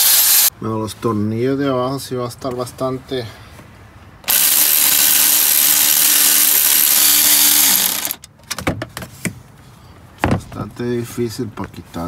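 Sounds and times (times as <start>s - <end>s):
cordless power tool running: 0.0s - 0.5s, 4.3s - 8.2s.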